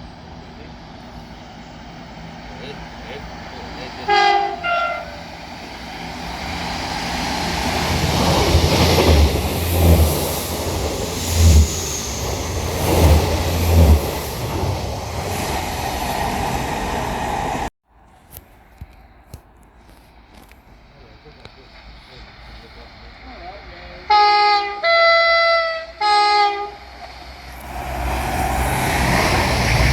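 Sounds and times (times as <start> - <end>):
passing train rumble: 0.0 - 29.9
two-tone train horn: 4.0 - 5.3, 24.0 - 26.9.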